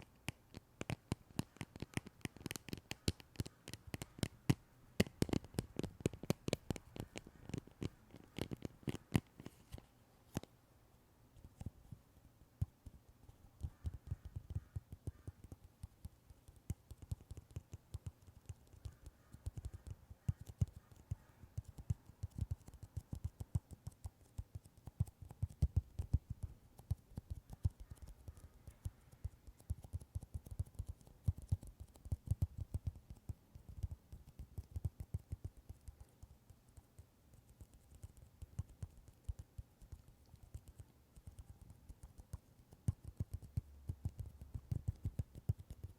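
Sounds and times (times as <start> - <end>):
rapid irregular tapping: 0.0 - 10.5, 12.6 - 45.9.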